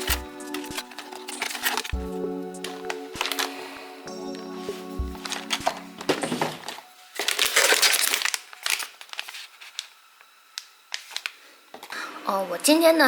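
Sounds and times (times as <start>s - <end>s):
packaging crinkling: 0.0s - 2.0s, 2.6s - 3.7s, 5.2s - 11.4s.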